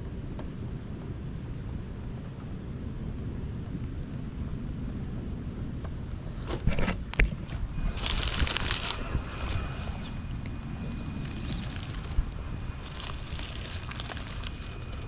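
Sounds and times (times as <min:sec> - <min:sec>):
steady low rumble: 0:00.0 - 0:15.0
tyres crunching on rough ground: 0:06.4 - 0:15.0
thin electric motor whine: 0:07.1 - 0:15.0.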